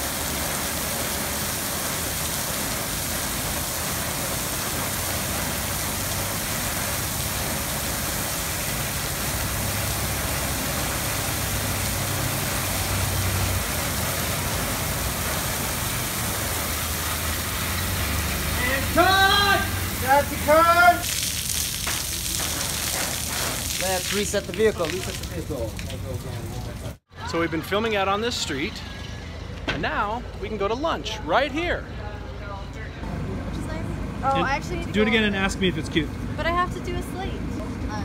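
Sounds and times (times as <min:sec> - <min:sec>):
artificial rain hissing: 0:00.0 - 0:27.0
vehicle engine running: 0:32.4 - 0:38.0.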